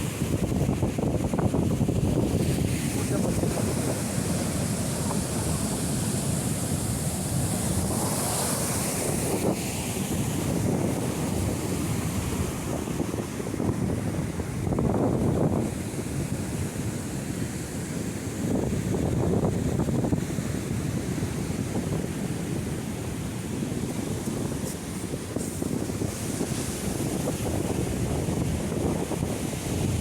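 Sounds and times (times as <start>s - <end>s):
sea waves breaking on shore: 0.0s - 30.0s
wind buffeting microphone: 0.0s - 30.0s.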